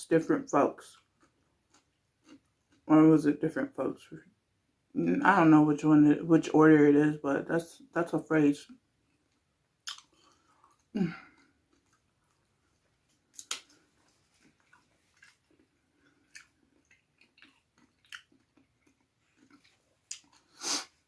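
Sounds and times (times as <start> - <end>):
person chewing food: 1.0 - 2.8, 9.0 - 21.0.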